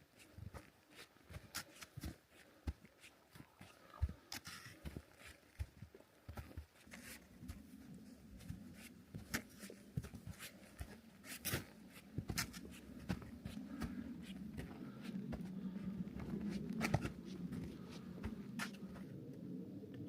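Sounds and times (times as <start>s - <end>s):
footsteps crunching on frozen snow: 0.1s - 19.1s
low steady rush: 7.2s - 20.0s.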